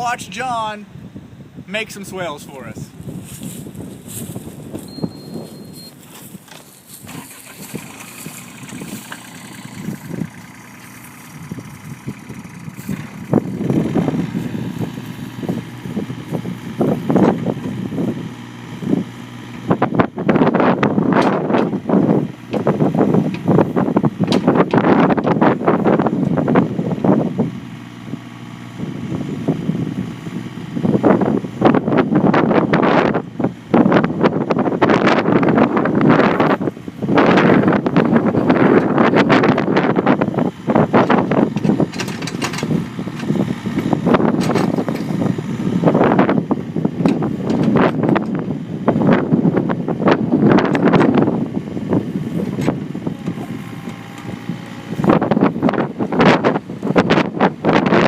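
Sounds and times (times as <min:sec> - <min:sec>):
excavator engine rumbling: 0:00.0 - 0:58.0
wind buffeting microphone: 0:00.0 - 0:58.0
digging knocks: 0:41.0 - 0:45.3.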